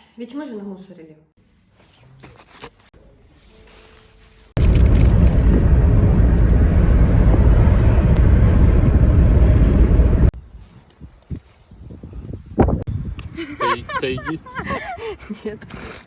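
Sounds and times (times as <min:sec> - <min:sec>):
car road and engine rumble: 0:04.6 - 0:10.4.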